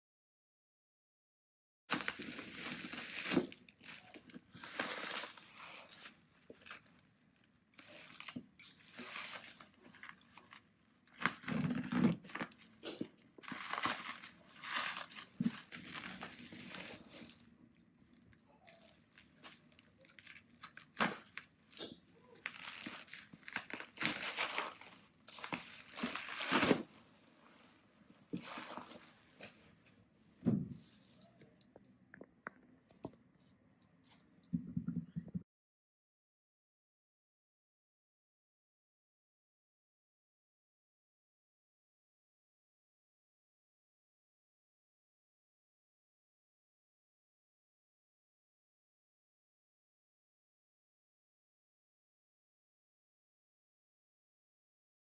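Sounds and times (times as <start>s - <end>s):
packaging crinkling and tearing: 1.9s - 7.1s, 7.8s - 17.5s, 18.6s - 27.0s.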